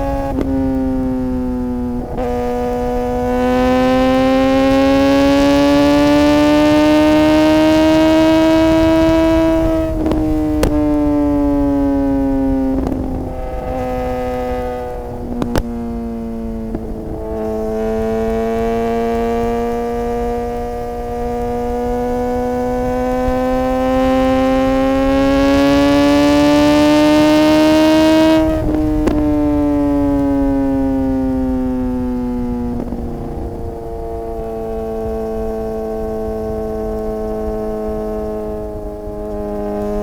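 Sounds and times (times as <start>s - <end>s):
motorcycle engine: 0.0s - 40.0s
wind noise: 0.0s - 40.0s.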